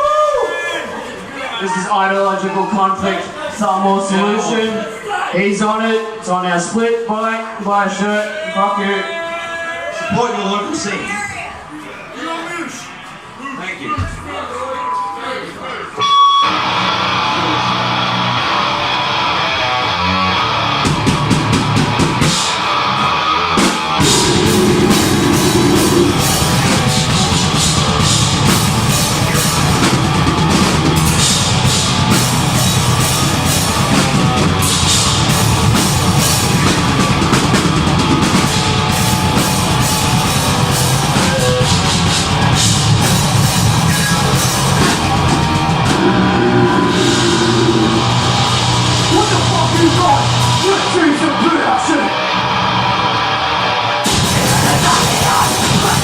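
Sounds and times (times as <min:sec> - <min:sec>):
distorted electric guitars: 0:16.0 - 0:56.0
drums: 0:16.0 - 0:56.0
bass guitar: 0:16.5 - 0:51.4, 0:52.2 - 0:56.0.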